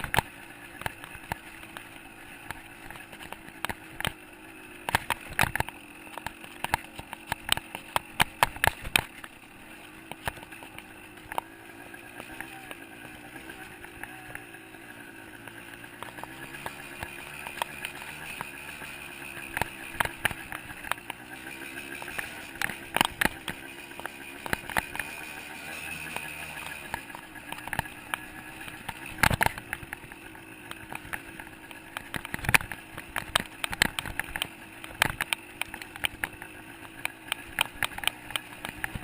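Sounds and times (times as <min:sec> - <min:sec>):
dirt bike engine running: 0:00.0 - 0:39.0
sharp knocks and clatter: 0:15.9 - 0:39.0.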